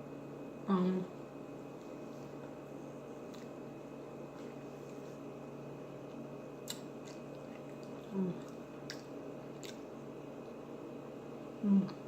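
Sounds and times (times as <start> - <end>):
person chewing food: 3.2 - 3.6, 6.1 - 9.9
person humming: 8.1 - 8.4, 11.6 - 12.0.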